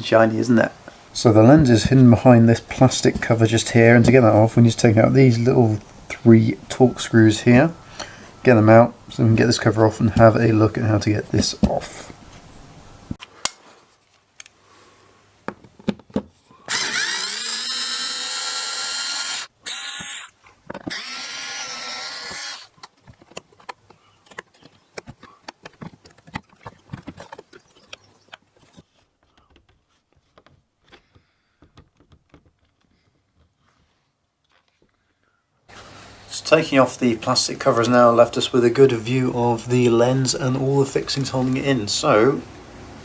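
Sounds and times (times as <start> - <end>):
cordless drill whirring: 16.7 - 22.8.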